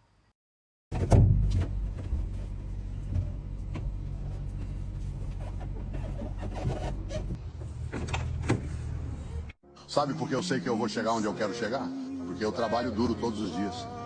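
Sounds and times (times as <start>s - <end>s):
truck engine running: 1.0s - 7.4s.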